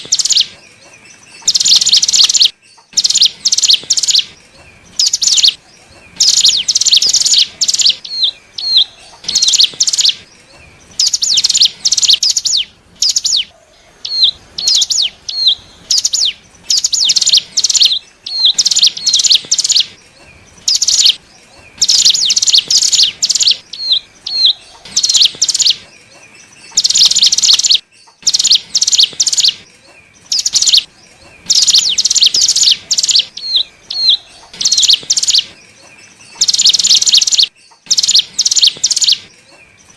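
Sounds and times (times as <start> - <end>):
bird buzzy chattering song: 0.0 - 39.9.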